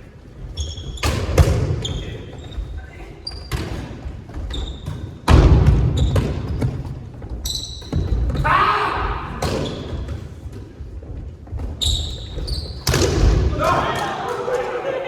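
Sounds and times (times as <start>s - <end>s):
shoe squeaks on hard floor: 0.4s - 5.3s, 5.9s - 8.4s, 11.6s - 13.0s.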